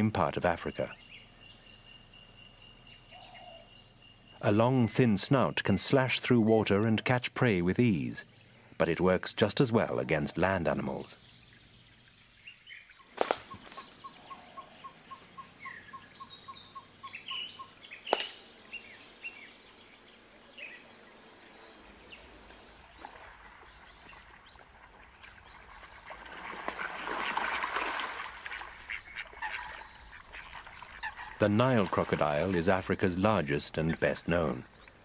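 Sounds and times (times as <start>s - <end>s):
birds calling and chirping: 0.0s - 26.7s, 28.2s - 35.0s
sharp cracks: 13.1s - 14.0s, 18.1s - 18.5s.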